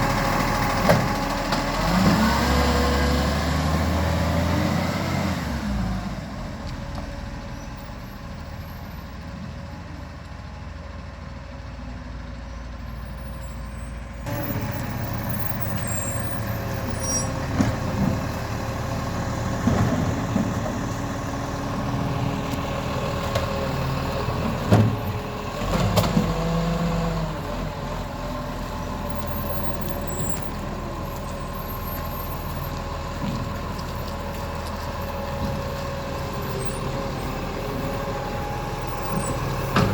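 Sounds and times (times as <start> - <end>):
garbage truck engine hum: 0.0 - 39.9
knocks and clanks: 19.5 - 21.0, 39.1 - 39.9.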